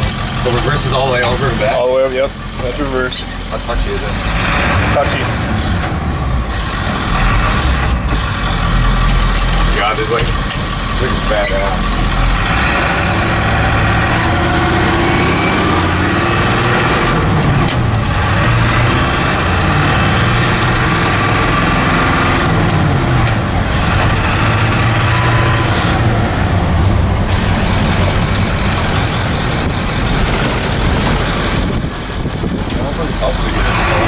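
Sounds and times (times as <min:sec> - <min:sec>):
diesel truck engine under load: 0:00.0 - 0:34.0.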